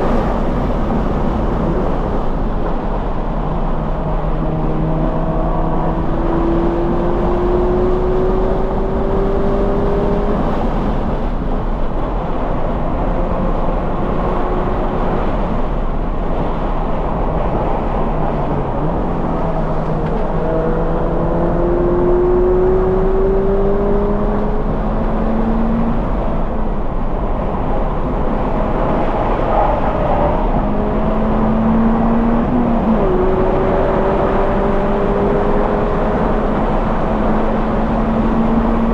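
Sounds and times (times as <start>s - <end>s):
wind noise: 0.0s - 38.9s
car engine accelerating: 3.5s - 38.9s.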